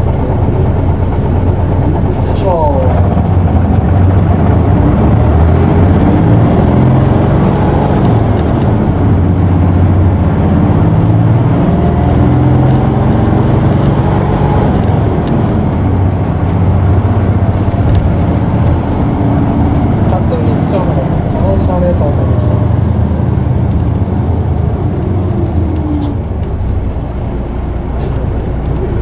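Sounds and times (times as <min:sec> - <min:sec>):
bus diesel engine under load: 0:00.0 - 0:29.0.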